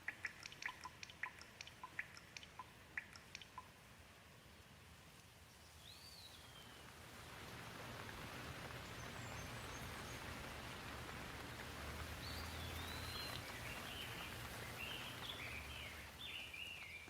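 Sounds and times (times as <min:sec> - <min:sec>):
bird singing warbling phrases: 0:00.0 - 0:03.7, 0:12.2 - 0:17.0
soft steady rain: 0:00.0 - 0:17.0.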